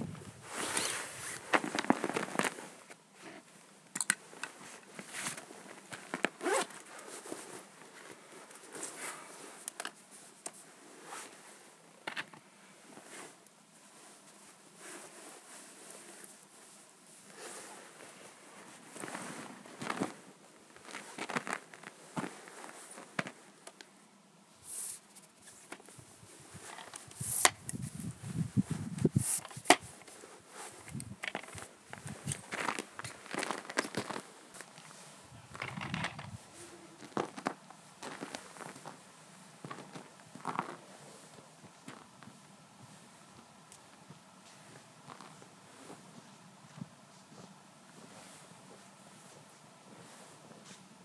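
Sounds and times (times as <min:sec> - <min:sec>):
zipper being pulled: 0:06.4 - 0:06.8
camera gear clicking and rustling: 0:30.8 - 0:32.5, 0:34.7 - 0:36.5.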